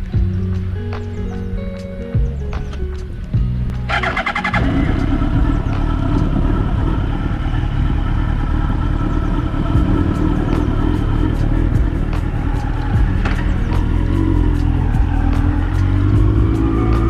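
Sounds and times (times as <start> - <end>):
motorcycle engine cruising: 0.0 - 17.0
wind and road noise: 0.0 - 17.0.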